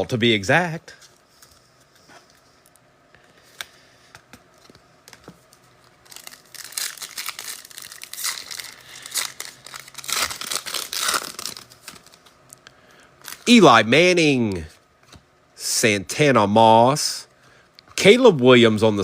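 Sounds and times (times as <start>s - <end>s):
foil wrapper tearing and crinkling: 6.0s - 12.2s.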